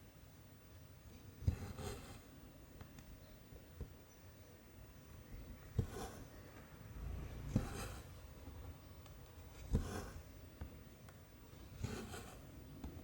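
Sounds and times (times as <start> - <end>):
thread rasping through canvas: 9.4 - 10.3, 11.7 - 13.0.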